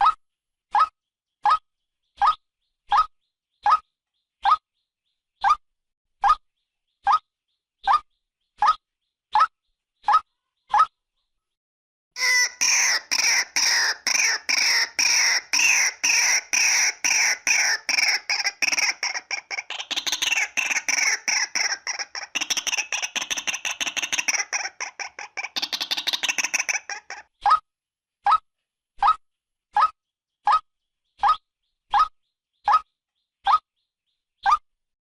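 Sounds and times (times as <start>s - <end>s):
waterhen calling harshly: 12.2s - 27.2s.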